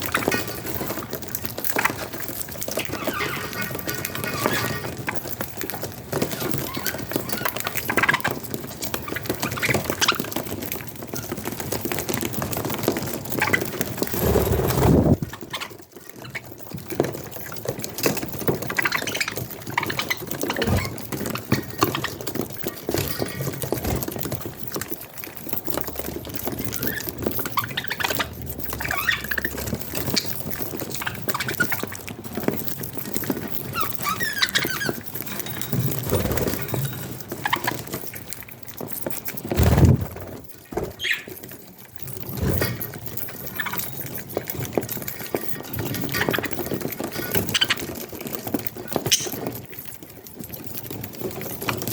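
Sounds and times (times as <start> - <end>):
young budgerigars cheeping: 26.5 - 30.4, 41.0 - 41.3.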